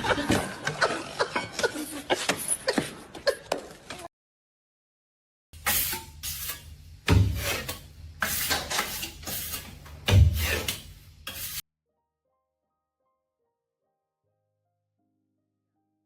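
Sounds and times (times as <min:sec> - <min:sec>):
scraping rasping strokes: 0:05.6 - 0:11.6.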